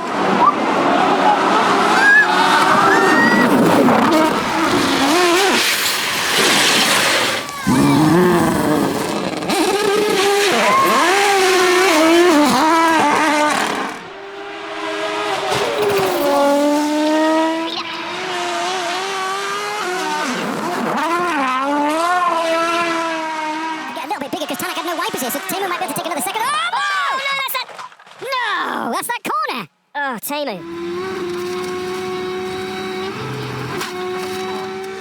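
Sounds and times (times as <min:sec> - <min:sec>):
rally car engines revving: 0:00.0 - 0:26.6, 0:30.6 - 0:35.0
tyres on gravel: 0:00.1 - 0:21.5.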